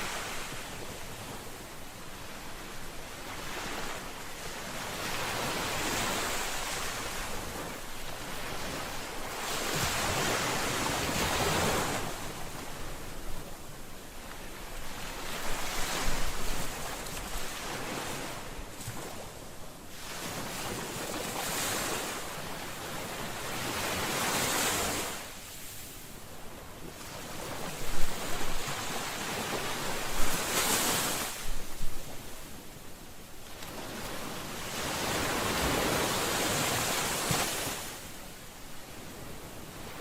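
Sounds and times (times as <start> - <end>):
ocean waves breaking: 20.0 - 32.6, 33.4 - 40.0.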